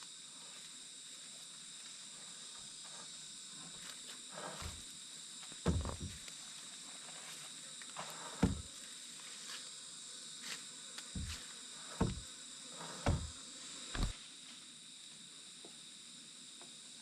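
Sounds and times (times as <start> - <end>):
insects trilling: 0.0 - 17.0
dull thumps: 5.7 - 6.2, 8.4 - 8.7, 11.2 - 11.4, 12.0 - 12.3, 12.9 - 13.4.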